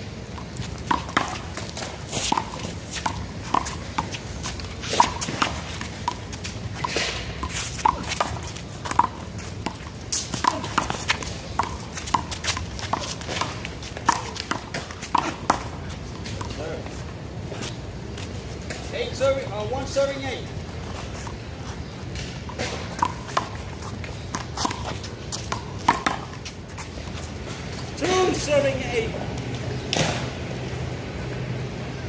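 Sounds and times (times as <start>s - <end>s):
ball bouncing on pavement: 0.0s - 17.0s, 17.6s - 30.4s.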